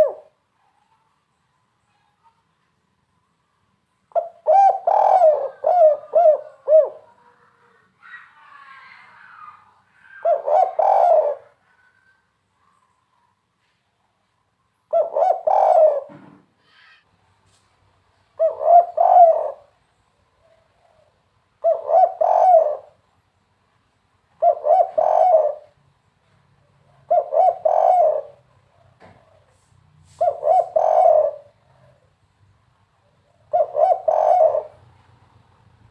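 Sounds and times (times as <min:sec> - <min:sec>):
dove cooing: 0:00.0 - 0:00.4, 0:04.1 - 0:12.2, 0:14.9 - 0:16.3, 0:18.4 - 0:19.8, 0:20.4 - 0:23.0, 0:24.4 - 0:25.8, 0:26.6 - 0:29.5, 0:30.2 - 0:32.2, 0:33.0 - 0:35.2.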